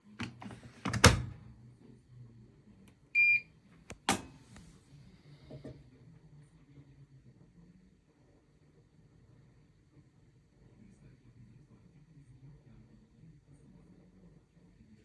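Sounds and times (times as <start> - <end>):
faint low hum: 0.0 - 15.0
washing machine clicks: 0.2 - 1.4.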